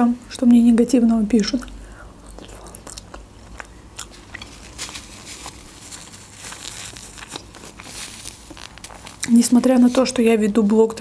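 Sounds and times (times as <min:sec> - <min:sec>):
chewing with wet clicks and smacks: 0:01.6 - 0:04.5.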